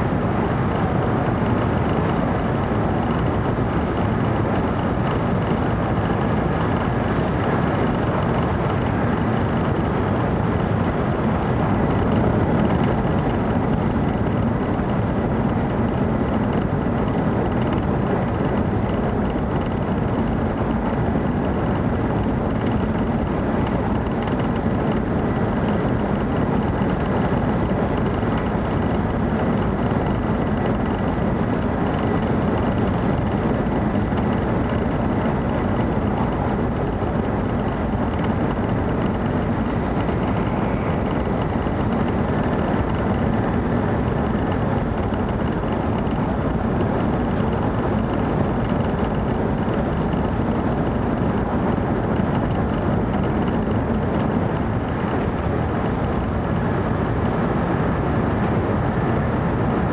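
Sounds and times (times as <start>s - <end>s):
train cabin rumble: 0.0s - 59.9s.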